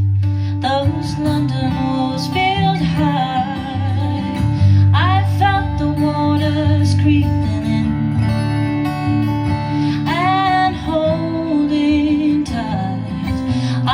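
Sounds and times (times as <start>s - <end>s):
guitar accompaniment: 0.0s - 13.9s
woman singing: 0.4s - 8.8s, 9.4s - 13.9s.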